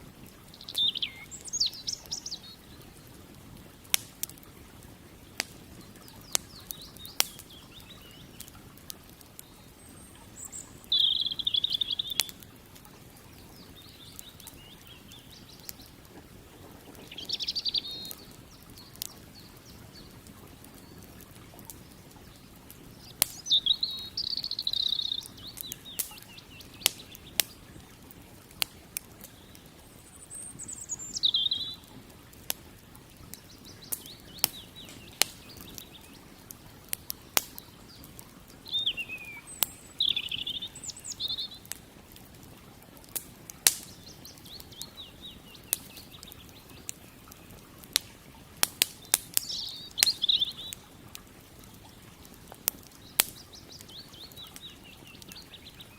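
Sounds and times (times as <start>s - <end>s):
campfire crackling and popping: 0.0s - 55.9s
songbird whistling: 0.6s - 2.6s, 10.4s - 12.4s, 17.0s - 18.9s, 23.4s - 27.4s, 30.0s - 31.8s, 38.6s - 41.6s, 49.4s - 50.8s.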